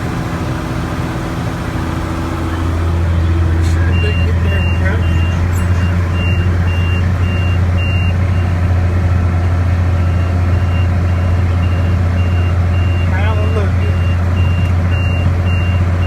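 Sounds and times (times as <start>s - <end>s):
tractor engine drone: 0.0s - 16.0s.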